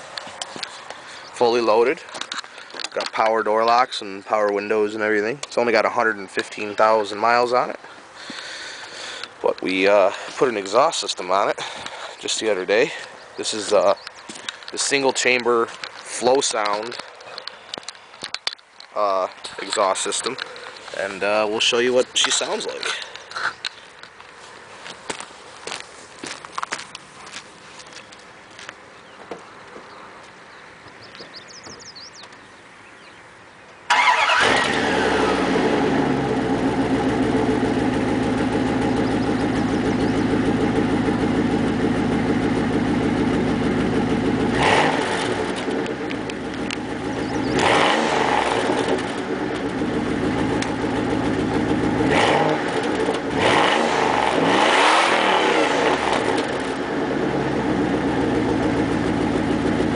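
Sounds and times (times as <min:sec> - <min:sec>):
engine starting and idling: 0:33.9 - 0:56.9
engine revving: 0:33.9 - 0:59.9.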